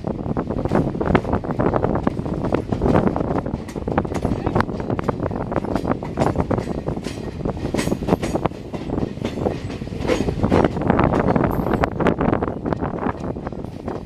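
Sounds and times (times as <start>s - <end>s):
train wheels rumbling on rails: 0.0s - 14.0s
rattling clicks and clanks: 0.6s - 14.0s.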